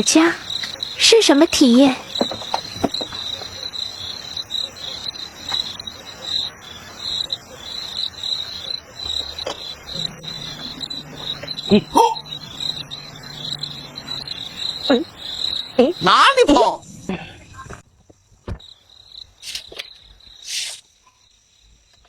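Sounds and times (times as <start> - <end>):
crickets trilling: 0.0 - 22.0
brief pitched call: 9.9 - 15.1.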